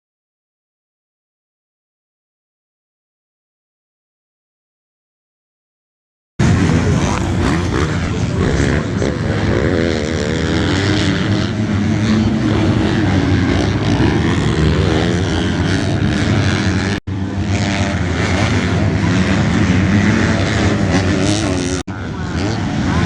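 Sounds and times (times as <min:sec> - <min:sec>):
motorcycle engines revving: 0:06.4 - 0:23.0.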